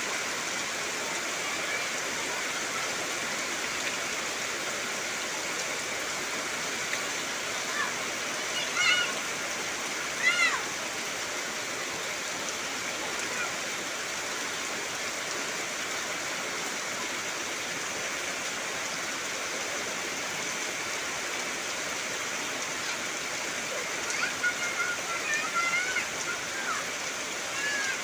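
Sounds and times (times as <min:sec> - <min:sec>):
heavy rain on foliage: 0:00.0 - 0:28.0.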